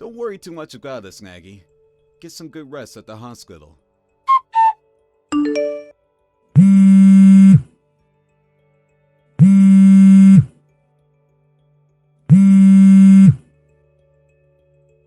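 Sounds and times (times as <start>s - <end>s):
phone buzzing: 6.6s - 7.6s, 9.4s - 10.5s, 12.3s - 13.4s.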